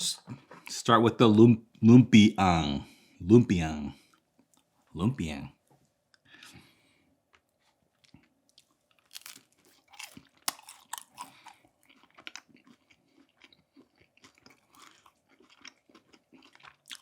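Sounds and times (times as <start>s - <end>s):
person chewing: 6.2s - 17.0s
crunching bites: 8.0s - 17.0s.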